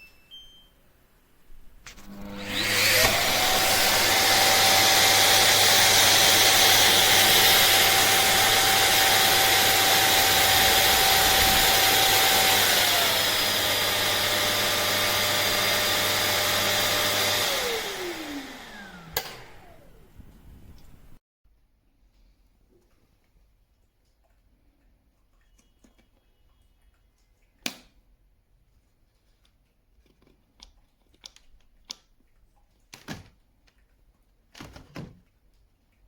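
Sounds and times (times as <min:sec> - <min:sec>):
vacuum motor whining: 0:01.9 - 0:21.2.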